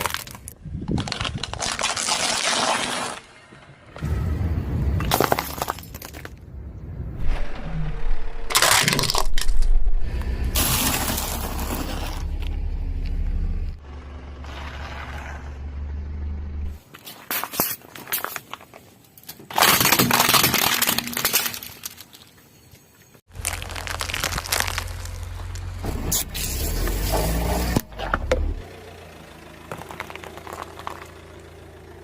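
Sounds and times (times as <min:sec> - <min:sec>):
tyre crushing brittle objects: 0:00.0 - 0:03.2, 0:08.5 - 0:09.6, 0:16.8 - 0:22.3, 0:23.3 - 0:25.8
car engine running: 0:10.1 - 0:16.8, 0:25.4 - 0:32.0.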